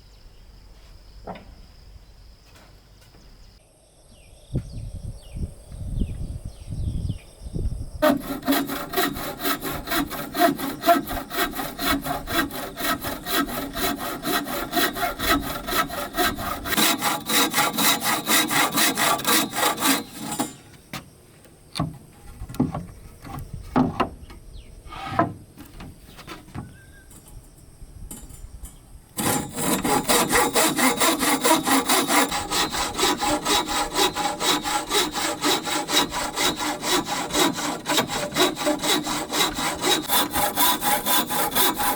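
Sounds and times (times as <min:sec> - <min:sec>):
saw cutting wood: 0:08.0 - 0:21.0, 0:29.2 - 0:41.9.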